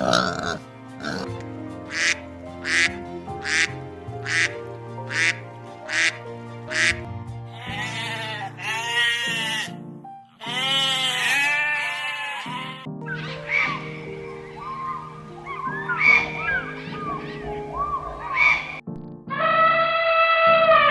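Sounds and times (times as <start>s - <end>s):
background music: 0.0s - 20.9s
duck quacking: 1.9s - 9.7s, 10.4s - 12.9s.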